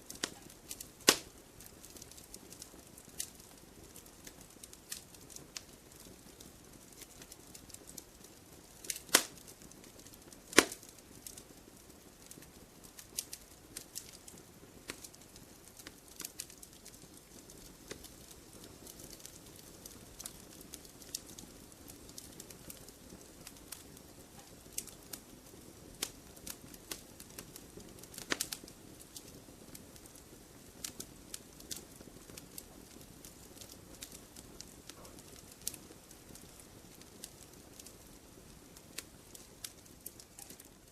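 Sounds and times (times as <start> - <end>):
campfire pops and snaps: 0.0 - 40.9
hiss of burning fire: 0.0 - 40.9.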